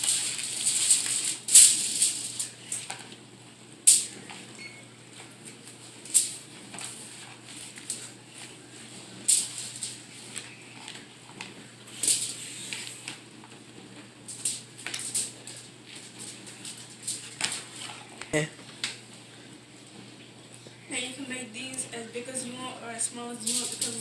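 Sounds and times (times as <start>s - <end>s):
aluminium foil crinkling: 0.0s - 3.2s, 3.9s - 4.5s, 5.1s - 13.6s, 14.2s - 19.0s, 22.4s - 24.0s.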